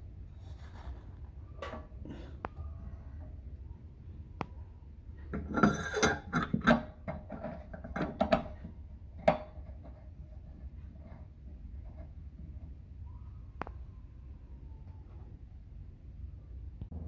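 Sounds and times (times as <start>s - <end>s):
metal tools clinking and rattling: 5.4s - 6.8s.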